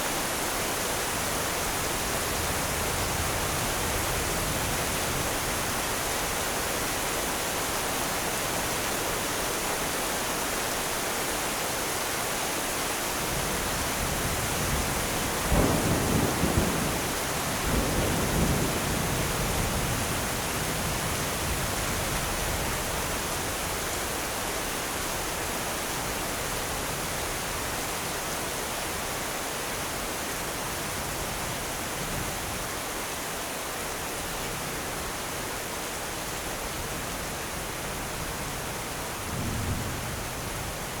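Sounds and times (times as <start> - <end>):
thunder rumbling: 15.3 - 20.2.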